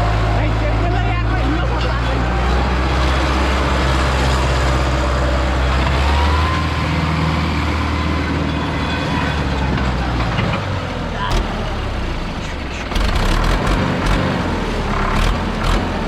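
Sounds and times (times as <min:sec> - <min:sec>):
tractor engine running: 0:10.9 - 0:16.0.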